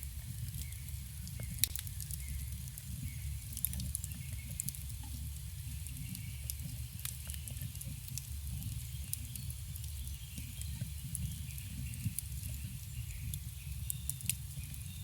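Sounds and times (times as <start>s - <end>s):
campfire crackling pops: 0.0s - 15.0s
low rumble of flames: 0.0s - 15.0s.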